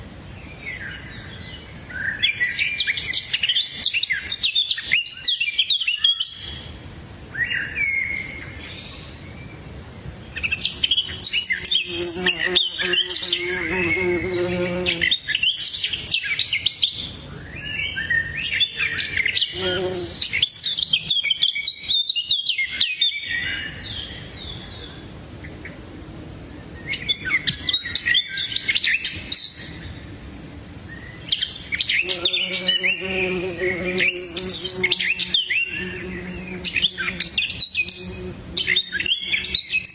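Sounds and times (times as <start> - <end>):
low steady bird call: 0.0 - 39.9
birds chirping: 10.2 - 25.8, 26.6 - 39.9.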